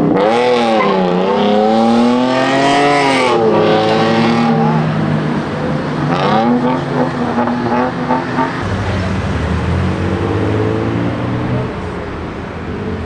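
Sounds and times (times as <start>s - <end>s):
sports car engine accelerating: 0.1s - 13.0s
deeper engine drone: 8.6s - 12.9s.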